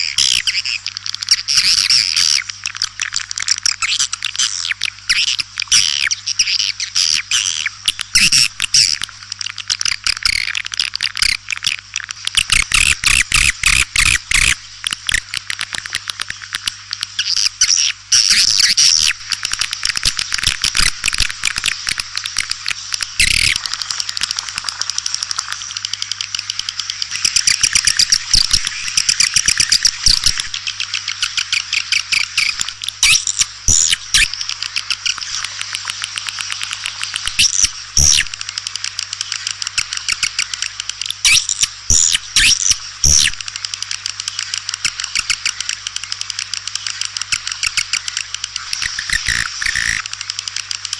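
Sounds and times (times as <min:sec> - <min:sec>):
swiftlets twittering: 0:19.8 - 0:50.9.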